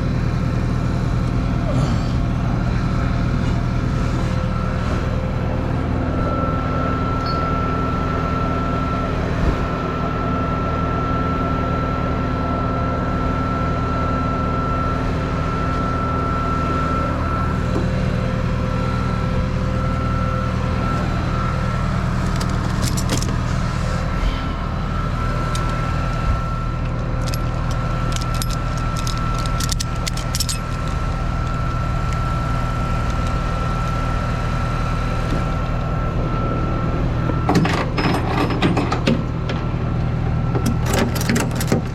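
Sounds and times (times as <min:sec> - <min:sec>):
high whine: 0:00.0 - 0:41.3
truck engine running: 0:00.0 - 0:41.9
metallic clicks and rattles: 0:22.2 - 0:23.5, 0:26.8 - 0:32.2, 0:40.6 - 0:41.9.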